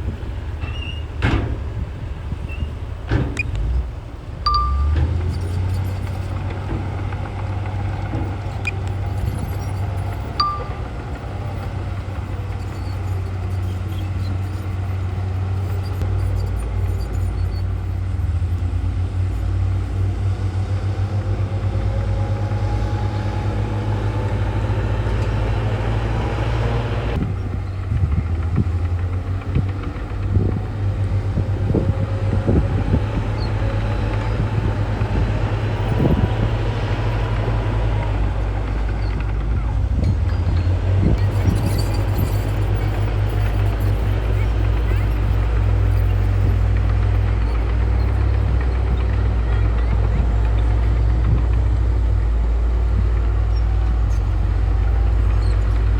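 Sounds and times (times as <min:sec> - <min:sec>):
diesel machinery engine hum: 0:00.0 - 0:55.9
metal clanks: 0:04.5 - 0:06.9, 0:10.3 - 0:11.1
high whine: 0:10.4 - 0:11.0.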